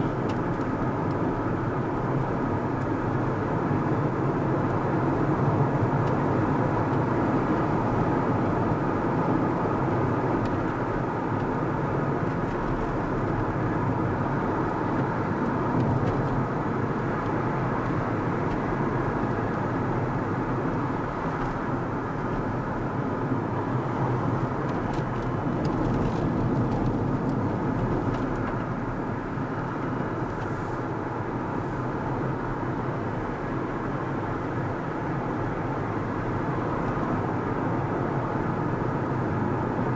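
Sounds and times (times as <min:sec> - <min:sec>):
car tyre and engine noise: 0:00.0 - 0:39.9.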